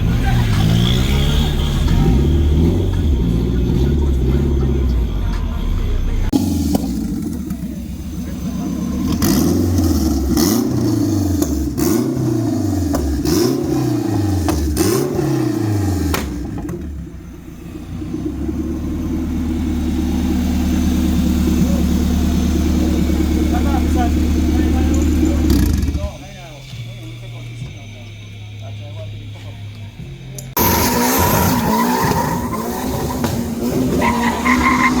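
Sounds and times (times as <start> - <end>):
car engine revving: 0.0 - 35.0
sharp crack: 16.0 - 16.8.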